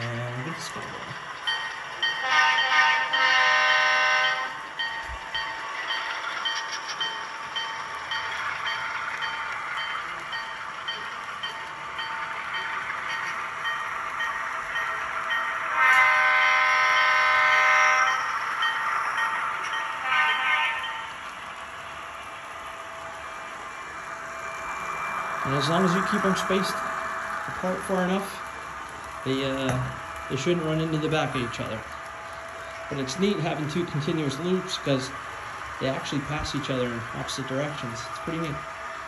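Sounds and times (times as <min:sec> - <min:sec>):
model locomotive diesel engine sound: 0:00.0 - 0:39.0
locomotive horn: 0:02.2 - 0:04.4, 0:15.7 - 0:18.1, 0:20.0 - 0:20.9.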